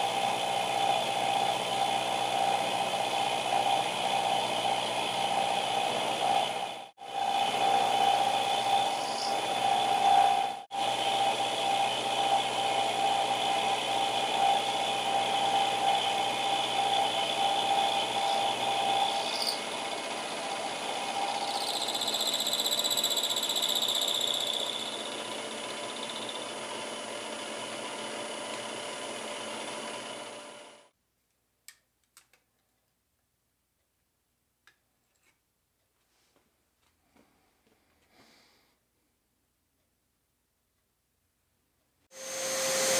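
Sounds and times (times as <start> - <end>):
milling machine cutting steel: 4.7 - 27.1, 42.2 - 42.9.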